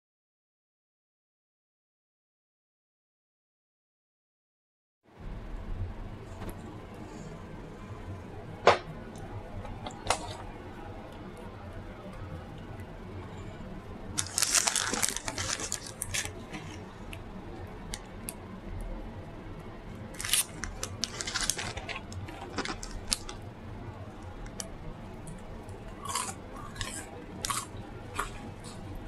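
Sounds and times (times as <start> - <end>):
eating sounds: 24.1 - 29.0.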